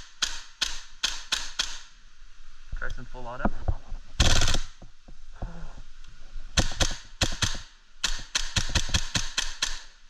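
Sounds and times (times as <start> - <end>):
airsoft rifle bolt clacking: 0.1 - 1.9, 6.6 - 9.9.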